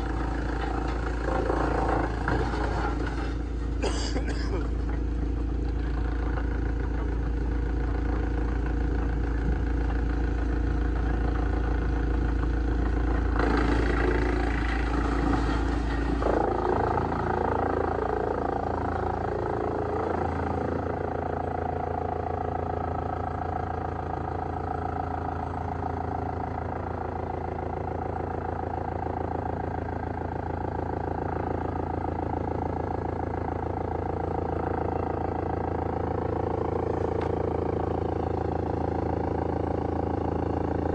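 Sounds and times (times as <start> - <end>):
rough grinding noise: 0.0 - 5.0, 12.8 - 21.1
wood shredder drone: 0.0 - 40.9.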